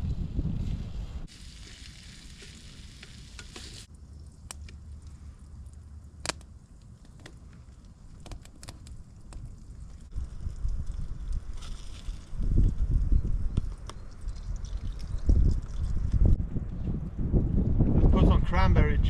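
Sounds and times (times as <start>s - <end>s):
low wind rumble: 0.0s - 1.3s, 3.8s - 19.0s
sharp pops and crackles: 1.3s - 16.4s.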